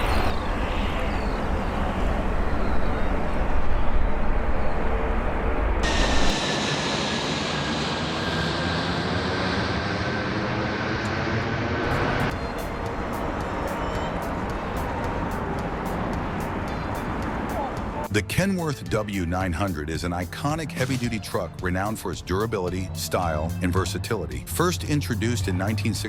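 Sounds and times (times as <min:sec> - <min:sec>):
jet engines roaring: 0:00.0 - 0:18.1, 0:19.8 - 0:26.0
high whine: 0:00.0 - 0:18.3.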